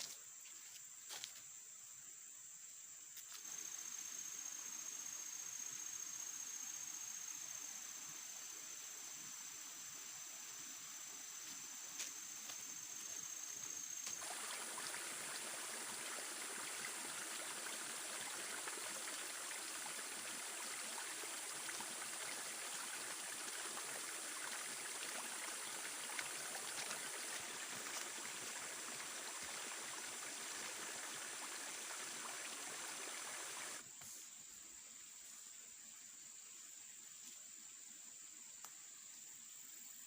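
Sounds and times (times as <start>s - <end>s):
stream water rushing: 14.0s - 33.8s.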